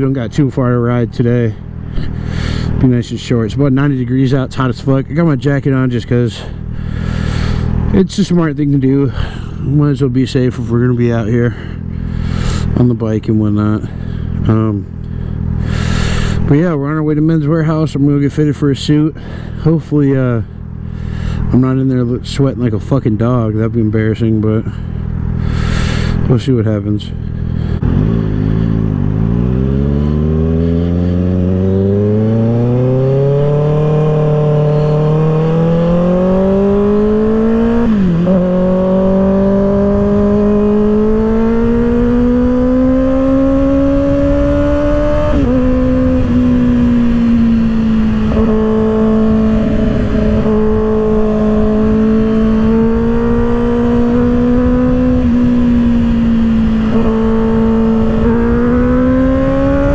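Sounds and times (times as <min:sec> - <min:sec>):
motorcycle engine revving: 0:05.7 - 0:08.4, 0:09.1 - 0:16.5, 0:19.2 - 0:59.9
wind rushing over microphone: 0:27.7 - 0:59.9.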